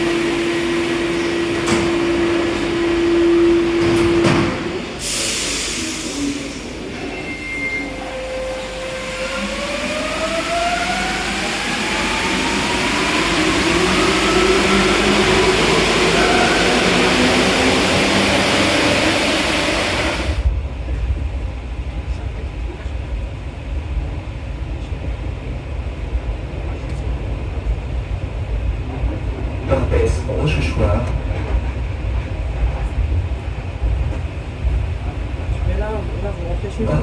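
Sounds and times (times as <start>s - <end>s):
train rushing through tunnel: 0.0s - 37.0s.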